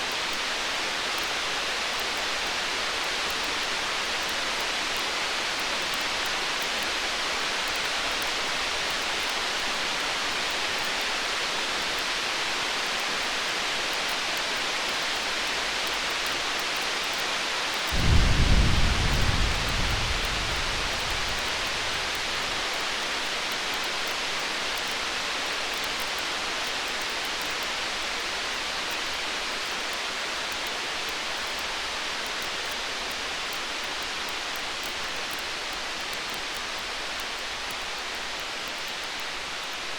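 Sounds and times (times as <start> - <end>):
rain-like hiss: 0.0 - 39.9
campfire crackling: 17.9 - 23.0
distant thunder rumble: 17.9 - 23.0.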